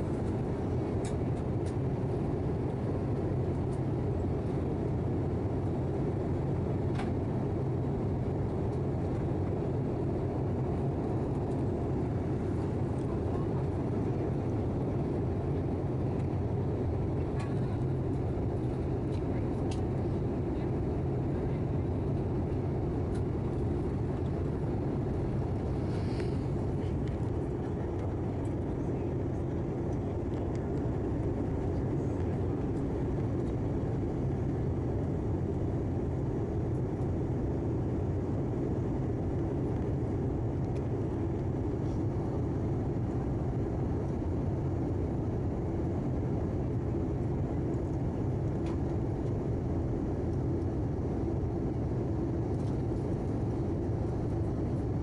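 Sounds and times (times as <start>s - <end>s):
airliner cabin noise: 0.0s - 55.0s.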